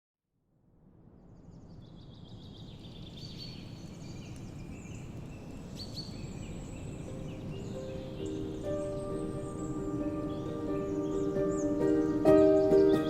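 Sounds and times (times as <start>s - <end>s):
low ambient rush: 0.9s - 13.0s
small birds chirping and trilling: 1.2s - 13.0s.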